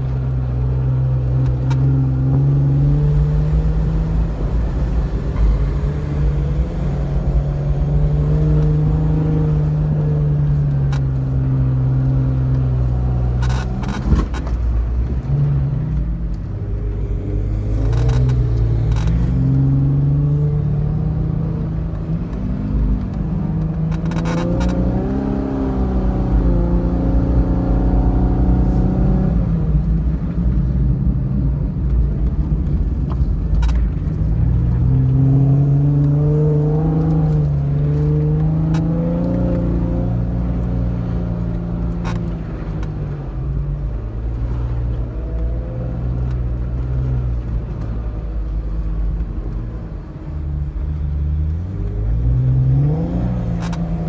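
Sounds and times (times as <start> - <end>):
off-road vehicle engine revving: 0.0 - 14.6, 16.9 - 29.7, 34.4 - 43.0, 50.6 - 54.0.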